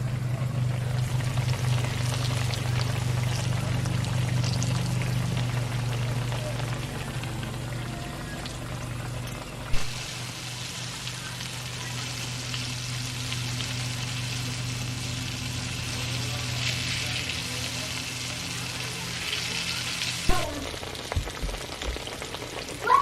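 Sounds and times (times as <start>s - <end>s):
steady low hum: 0.0s - 21.1s
squash sizzling in a pan: 1.0s - 6.8s, 9.7s - 23.0s.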